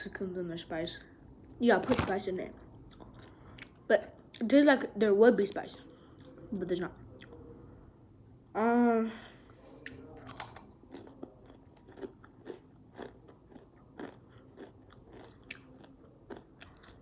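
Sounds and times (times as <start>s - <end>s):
person chewing potato chips: 10.3s - 17.0s.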